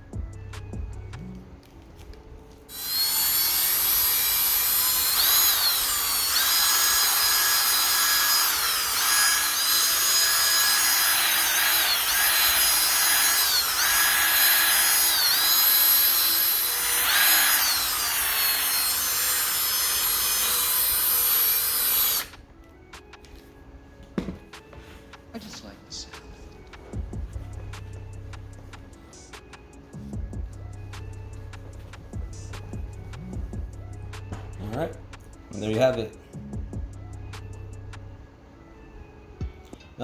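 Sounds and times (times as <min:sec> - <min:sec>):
power drill whining: 0:02.7 - 0:22.4.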